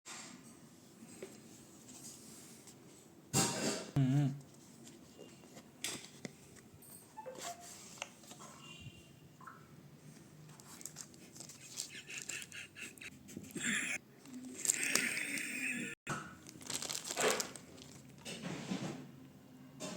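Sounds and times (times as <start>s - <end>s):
packaging rustling: 10.6s - 12.5s, 16.4s - 18.2s
packaging clicks and scrapes: 16.5s - 18.4s.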